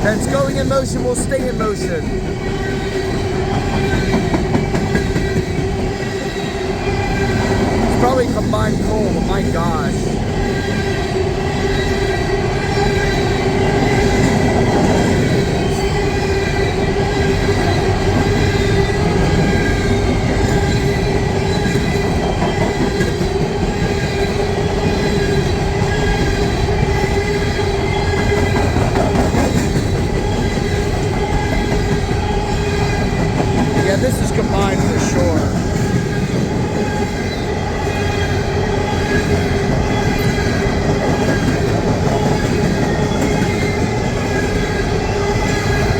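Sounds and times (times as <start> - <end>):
steel wheels rumbling on rail: 0.0 - 45.9.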